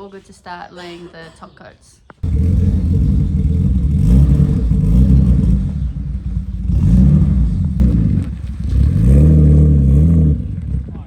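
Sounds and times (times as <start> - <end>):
car engine revving: 2.2 - 11.0.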